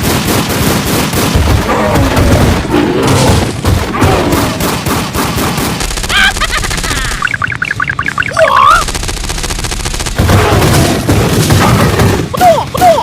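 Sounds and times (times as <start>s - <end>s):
rapid cartoon popping: 5.3s - 13.0s
high squeaky chirps: 7.0s - 8.8s.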